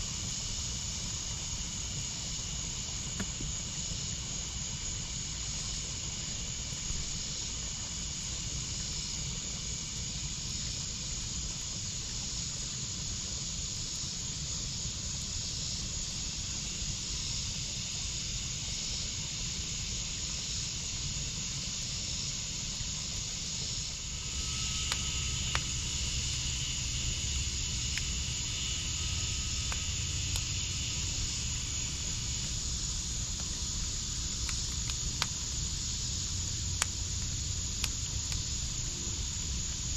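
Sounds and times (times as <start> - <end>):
insects chirping: 0.0 - 39.9
wood fire hissing and crackling: 0.0 - 39.9.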